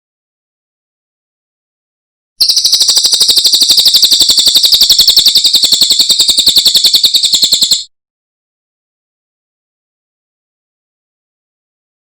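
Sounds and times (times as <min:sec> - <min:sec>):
songbird trilling: 0:02.4 - 0:07.8.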